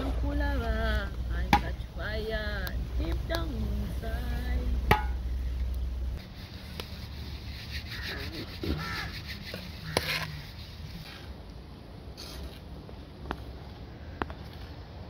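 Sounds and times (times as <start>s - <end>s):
peanuts scraping in hot sand: 5.3s - 12.8s.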